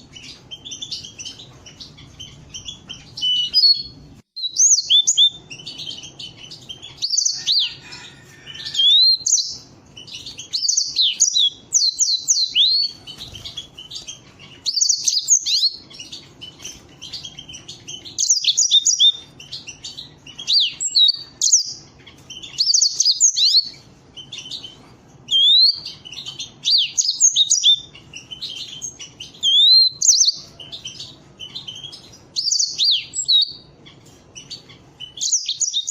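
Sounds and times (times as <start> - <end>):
canaries singing: 0.0 - 35.9.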